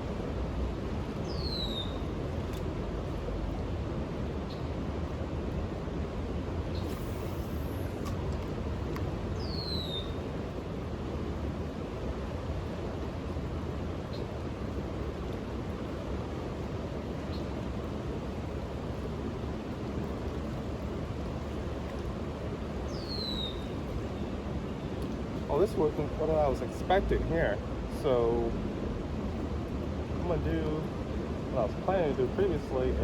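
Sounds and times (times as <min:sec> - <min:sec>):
low outdoor background noise: 0:00.0 - 0:33.0.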